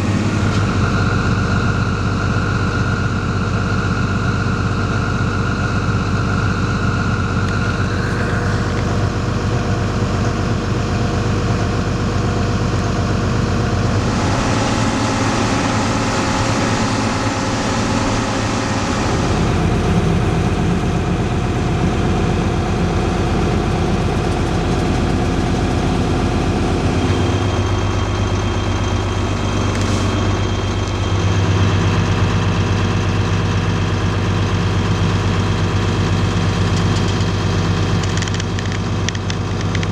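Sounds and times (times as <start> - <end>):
diesel farm machinery running: 0.0 - 39.9
hissing: 7.7 - 11.3, 26.0 - 31.6.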